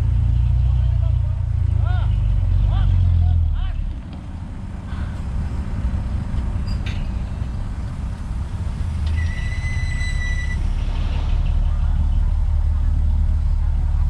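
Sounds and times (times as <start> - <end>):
heavy diesel machinery rumbling: 0.0 - 14.0
metallic clank: 6.5 - 7.7
high steady squeal: 6.5 - 11.7.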